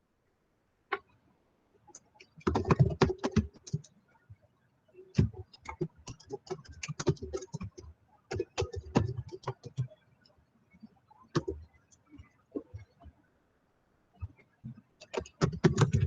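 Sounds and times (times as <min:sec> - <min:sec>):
computer keyboard typing: 0:01.9 - 0:03.9, 0:05.2 - 0:09.9, 0:11.4 - 0:11.6, 0:15.0 - 0:16.0.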